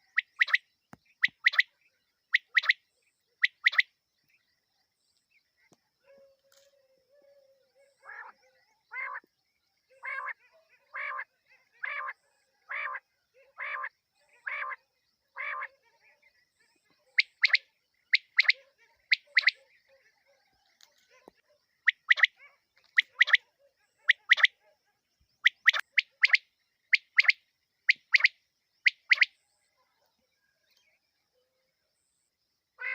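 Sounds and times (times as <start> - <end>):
quail calling: 0.0 - 0.6, 1.2 - 1.7, 2.3 - 2.8, 3.4 - 3.8, 8.0 - 9.2, 9.9 - 14.8, 15.4 - 15.7, 17.2 - 19.6, 21.8 - 23.4, 24.0 - 24.6, 25.4 - 29.3.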